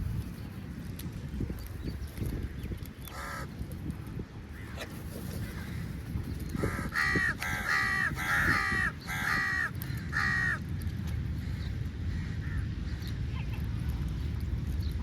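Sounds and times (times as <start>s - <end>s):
low background rumble: 0.0s - 15.0s
crow cawing: 3.1s - 3.5s, 6.6s - 10.6s.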